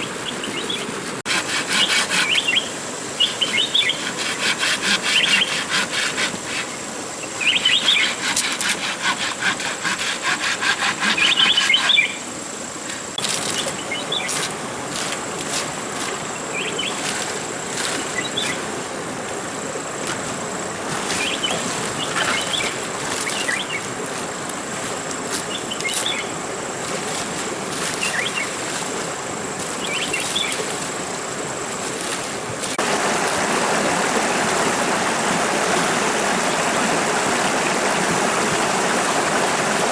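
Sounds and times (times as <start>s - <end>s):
rhythmic scraping on wood: 0.0s - 2.6s, 3.3s - 6.9s, 7.6s - 12.2s, 20.0s - 33.5s
rushing stream: 0.0s - 39.9s
high insect whine: 1.4s - 39.8s.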